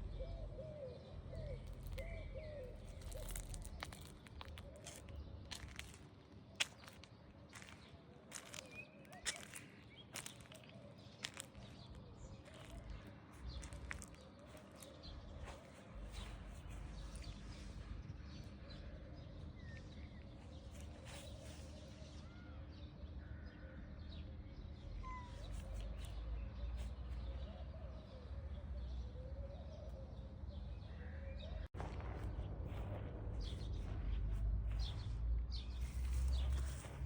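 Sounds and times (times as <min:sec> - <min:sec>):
faint bird chirps: 0:24.9 - 0:31.6
low rumble: 0:31.7 - 0:37.0.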